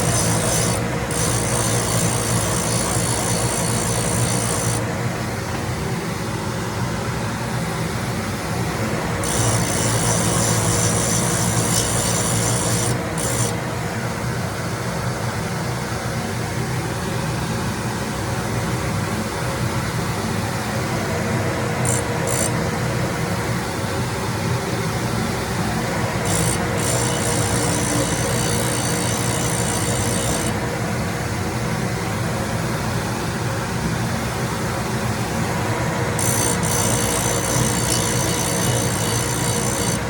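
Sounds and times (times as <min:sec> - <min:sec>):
high grinding hiss: 0:00.0 - 0:04.8, 0:25.5 - 0:30.6
grinding machine motor hum: 0:00.0 - 0:06.1, 0:08.4 - 0:14.6, 0:19.8 - 0:32.3, 0:34.7 - 0:40.0.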